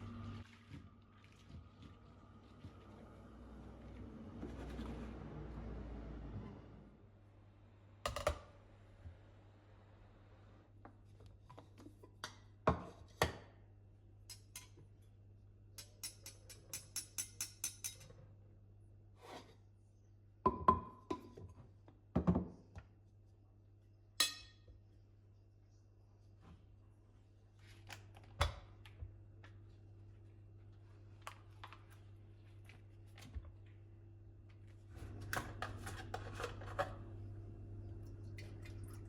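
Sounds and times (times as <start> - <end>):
low steady hum: 0.0 - 12.2, 23.0 - 39.0.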